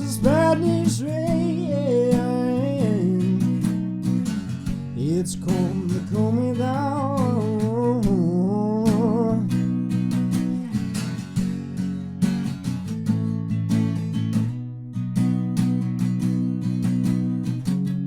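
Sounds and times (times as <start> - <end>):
man singing wordlessly: 0.0 - 3.9, 4.9 - 9.7
strummed acoustic guitar: 0.0 - 18.0.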